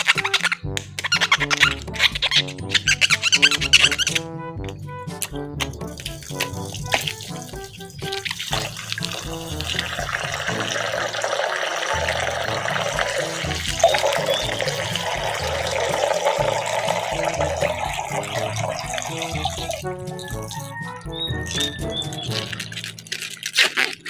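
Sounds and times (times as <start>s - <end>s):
background music: 0.0s - 24.0s
tap water running into sink: 5.6s - 20.8s.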